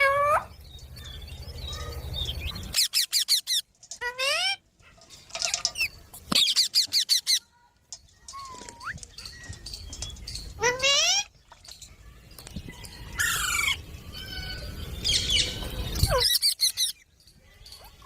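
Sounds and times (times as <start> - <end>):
parrots screeching: 2.6 - 4.6, 10.6 - 11.3, 13.2 - 17.0.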